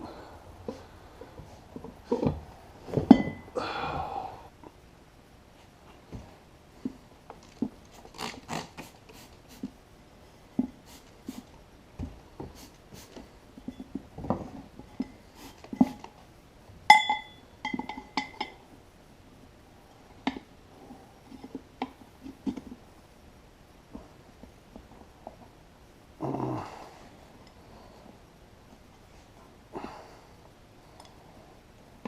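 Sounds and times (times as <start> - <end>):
ringing metallic clink: 3.1 - 3.5, 16.9 - 18.6.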